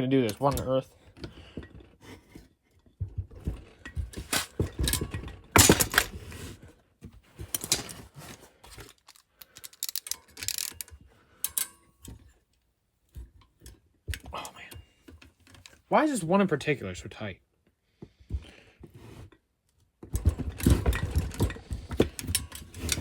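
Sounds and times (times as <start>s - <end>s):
ratchet clicking: 9.0s - 10.9s.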